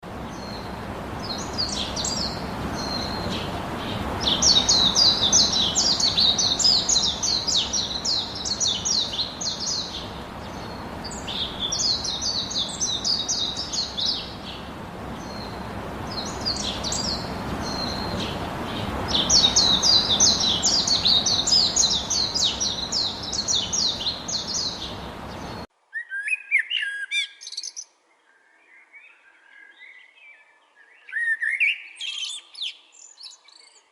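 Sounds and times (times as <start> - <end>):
background hiss: 0.0 - 25.7
low bird calls: 0.3 - 27.1
songbird trilling: 1.2 - 27.7.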